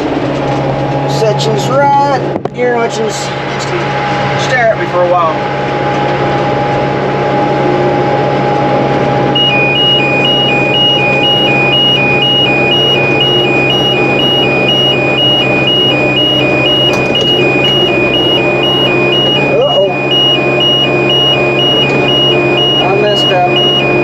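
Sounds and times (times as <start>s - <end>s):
tractor engine running: 0.0s - 24.0s
electronic two-tone alarm: 9.4s - 24.0s.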